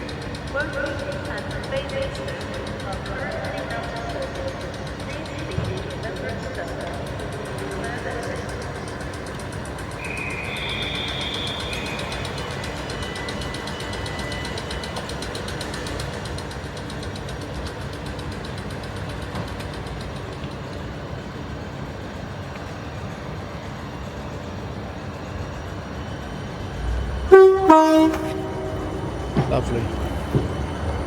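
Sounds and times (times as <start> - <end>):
train rumbling: 0.0 - 31.0
two-tone train horn: 10.0 - 14.8, 26.6 - 29.7.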